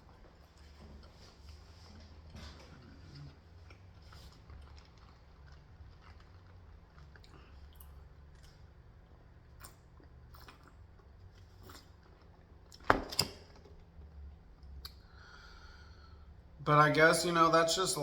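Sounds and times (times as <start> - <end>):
person chewing food: 0.0 - 12.8.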